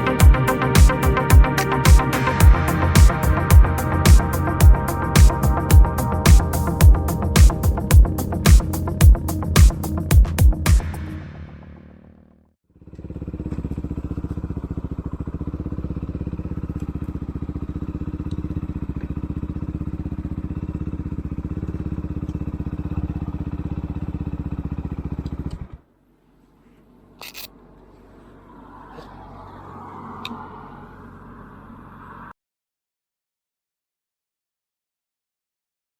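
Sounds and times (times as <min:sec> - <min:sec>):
motorcycle engine idling: 0:00.0 - 0:28.4.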